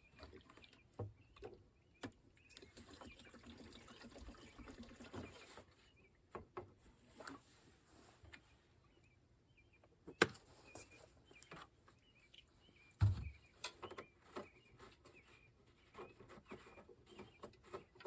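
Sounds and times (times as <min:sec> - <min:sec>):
small birds chirping: 0:00.0 - 0:18.0
dull knock from handling mower: 0:13.0 - 0:13.4.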